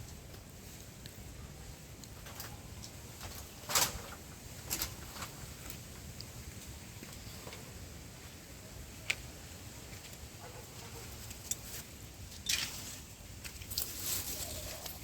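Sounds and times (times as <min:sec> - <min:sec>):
vines rustling and snapping: 0:02.0 - 0:07.6, 0:11.1 - 0:15.0.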